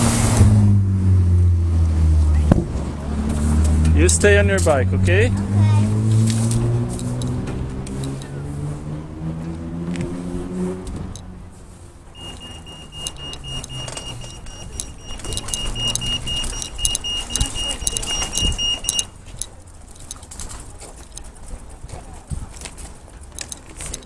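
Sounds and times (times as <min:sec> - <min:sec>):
motor vehicle passing: 0:00.0 - 0:24.0
pedestrian crossing beeper: 0:12.1 - 0:19.3
light clicks and rattles: 0:12.2 - 0:24.0.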